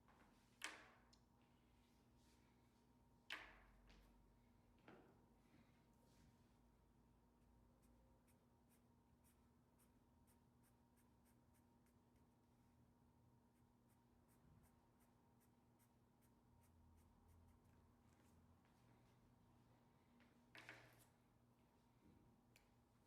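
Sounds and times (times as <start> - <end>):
faint steady hum: 0.0 - 23.0
pencil scratching on paper: 7.8 - 12.4, 13.5 - 17.9.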